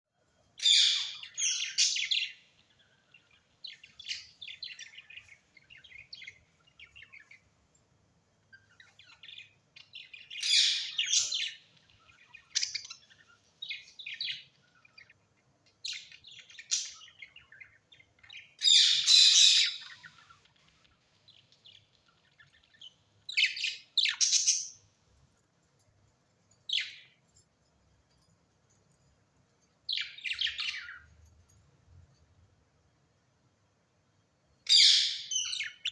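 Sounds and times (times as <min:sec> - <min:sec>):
birds chirping: 0:00.5 - 0:07.8, 0:08.4 - 0:32.4, 0:34.6 - 0:35.9.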